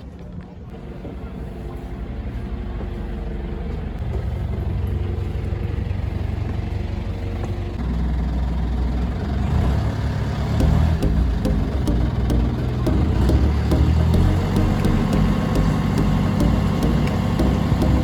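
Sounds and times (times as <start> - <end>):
boat engine running: 9.5 - 18.0.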